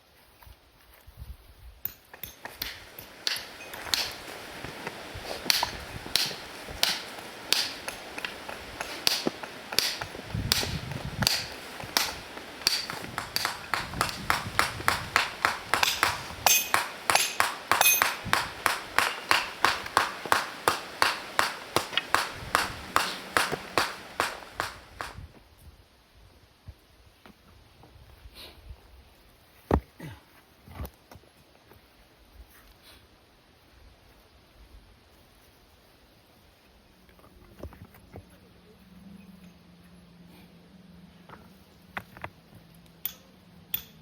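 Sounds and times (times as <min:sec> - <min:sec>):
metal tool striking stony ground: 0:01.8 - 0:04.4, 0:05.3 - 0:25.2.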